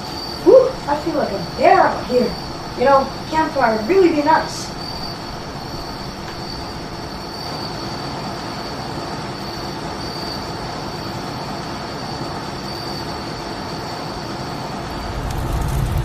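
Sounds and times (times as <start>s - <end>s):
constant high-pitched tone: 0.0s - 16.0s
steady rushing noise: 0.1s - 7.3s, 14.4s - 16.0s.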